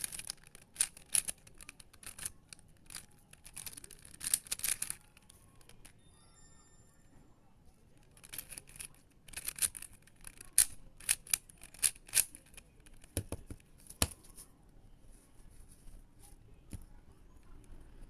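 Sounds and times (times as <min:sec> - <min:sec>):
plastic puzzle cube clicking: 0:00.0 - 0:06.0, 0:08.0 - 0:14.2.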